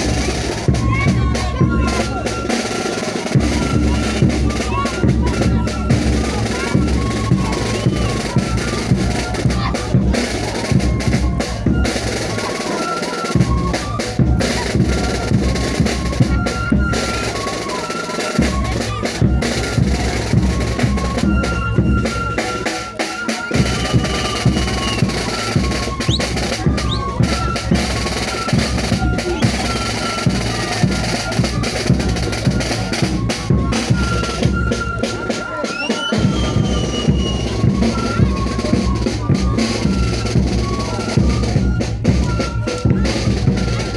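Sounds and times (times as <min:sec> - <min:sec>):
high melody of held notes: 0:00.0 - 0:43.9
live band music: 0:00.0 - 0:43.9
bass drum and snare beating: 0:18.4 - 0:35.4.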